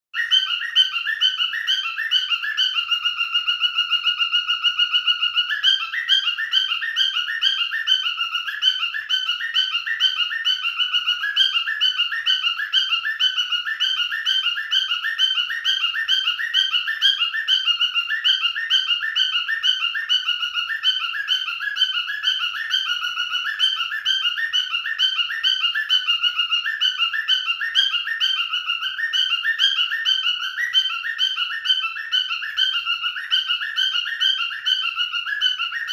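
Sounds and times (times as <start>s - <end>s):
cockatiel whistling: 0.2s - 35.9s.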